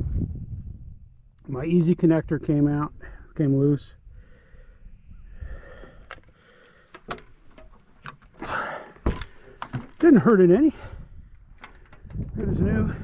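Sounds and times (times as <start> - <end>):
wind rumble on microphone: 0.0 - 3.0, 10.8 - 13.0
breathy rustle: 4.2 - 10.0.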